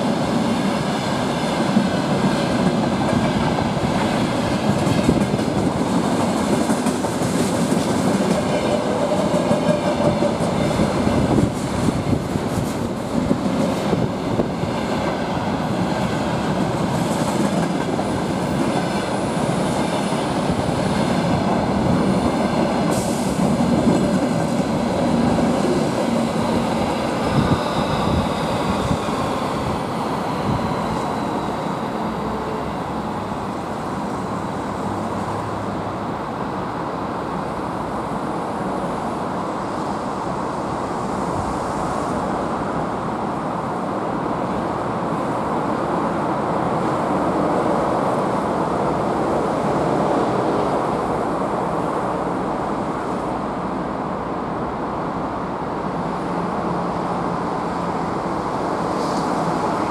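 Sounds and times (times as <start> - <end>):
freight train rolling on rails: 0.0 - 59.9
high wheel squeal: 26.4 - 32.8.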